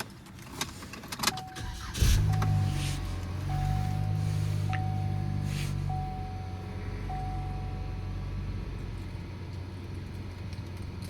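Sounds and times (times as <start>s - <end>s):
pickup engine idling: 1.4s - 11.0s
electronic warning chime: 3.4s - 8.2s.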